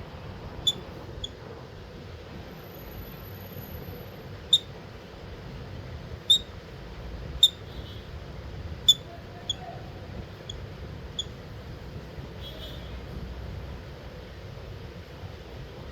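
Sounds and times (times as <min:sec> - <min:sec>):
lovebird high-pitched chirps: 0:00.6 - 0:01.4, 0:04.5 - 0:04.7, 0:06.3 - 0:06.5, 0:07.4 - 0:07.9, 0:08.8 - 0:09.7, 0:10.4 - 0:11.4.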